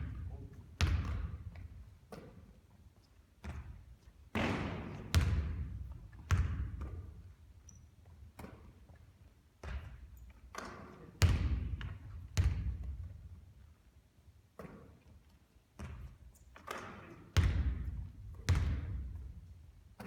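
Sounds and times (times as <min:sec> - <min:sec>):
basketball bouncing on hard court: 0:00.0 - 0:02.6, 0:03.4 - 0:07.4, 0:09.6 - 0:13.4, 0:15.8 - 0:19.4.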